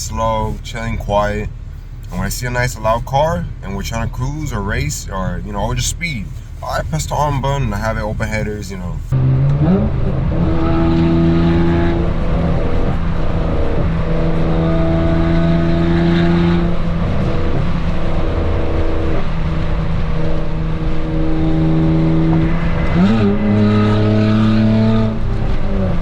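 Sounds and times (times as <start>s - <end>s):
car engine revving loudly: 4.5s - 19.2s, 20.7s - 26.0s.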